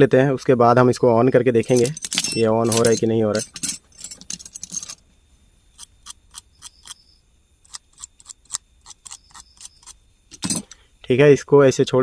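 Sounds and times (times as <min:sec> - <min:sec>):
faint high-pitched whine: 0:00.0 - 0:12.0
small tools clicking and tapping: 0:01.7 - 0:05.0, 0:07.7 - 0:10.8.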